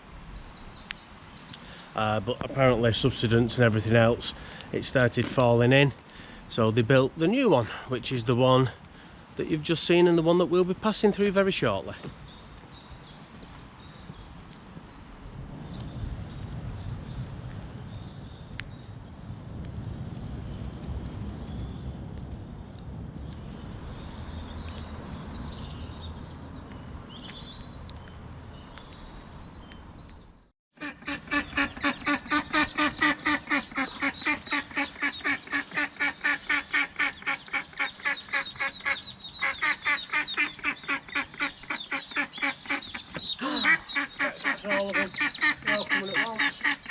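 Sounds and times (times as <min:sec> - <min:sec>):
duck quacking rapidly: 0:30.8 - 0:46.9
faint bird chirps: 0:31.4 - 0:46.9.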